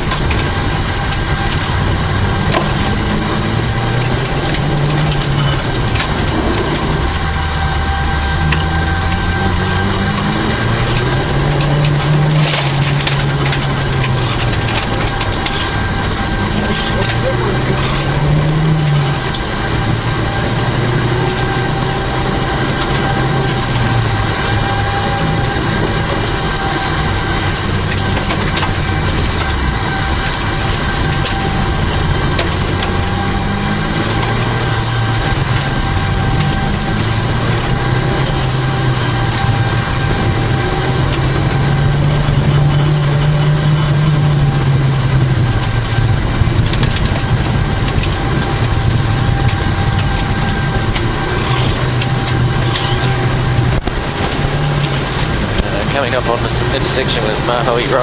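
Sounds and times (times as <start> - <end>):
car engine revving: 0.0 - 58.0
heavy road noise: 0.0 - 58.0.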